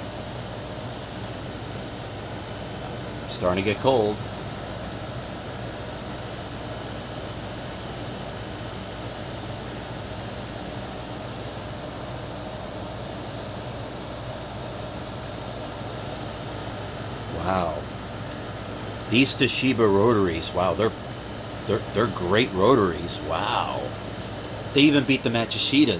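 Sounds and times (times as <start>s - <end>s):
air conditioner humming: 0.0s - 25.9s.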